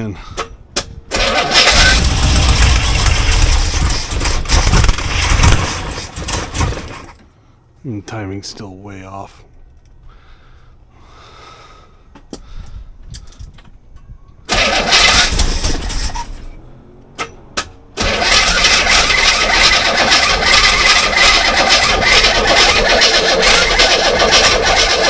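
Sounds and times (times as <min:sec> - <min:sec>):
car engine starting: 0:01.0 - 0:07.4, 0:14.4 - 0:25.0.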